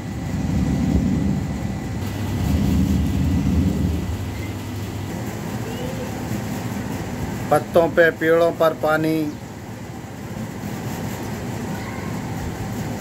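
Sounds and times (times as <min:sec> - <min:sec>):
low rumble: 0:00.0 - 0:05.3
heavy rain on rooftops: 0:02.0 - 0:04.3.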